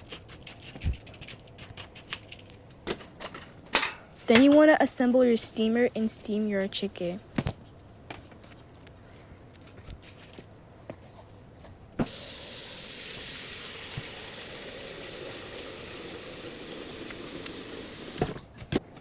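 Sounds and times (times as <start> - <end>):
water running from a tap: 12.0 - 18.2.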